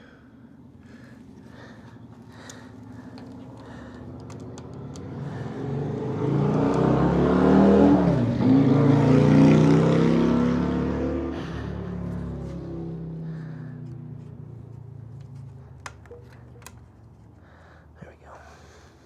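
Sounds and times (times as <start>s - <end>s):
vehicle engine passing by: 1.5s - 16.4s.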